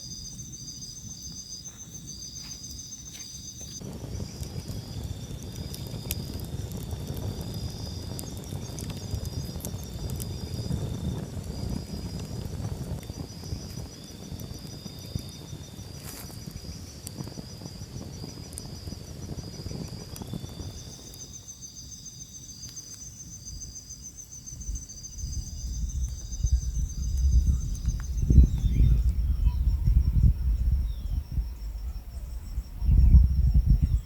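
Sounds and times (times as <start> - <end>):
crickets and night insects trilling: 0.0 - 34.0
low rumbling noise: 24.7 - 34.0.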